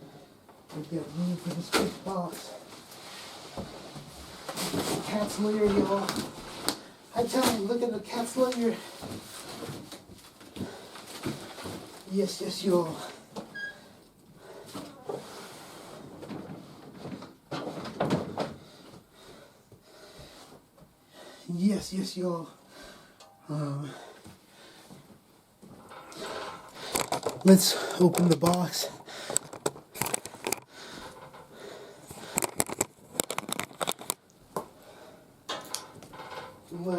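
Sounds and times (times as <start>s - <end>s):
cardboard crackles and clicks: 32.3s - 34.3s.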